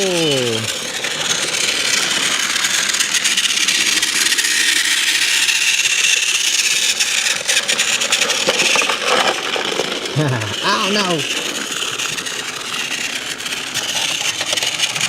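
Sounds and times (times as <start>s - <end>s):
toy train clicks: 0.0s - 15.0s
toy train motor whirring: 0.0s - 15.0s.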